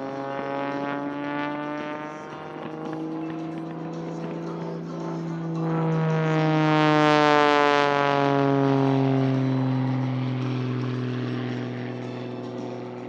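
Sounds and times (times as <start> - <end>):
propeller airplane flying past: 0.0 - 13.0.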